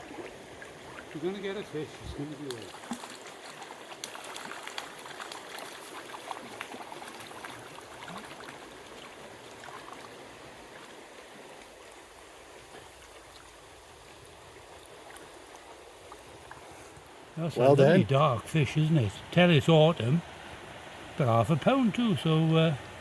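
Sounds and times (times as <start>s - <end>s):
stream running over stones: 0.0s - 23.0s.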